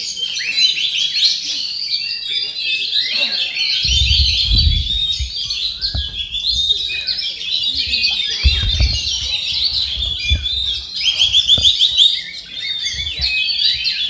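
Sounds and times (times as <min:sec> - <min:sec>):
songbird singing: 0:00.0 - 0:14.0
low rumbling bumps: 0:03.8 - 0:12.0, 0:12.8 - 0:14.0.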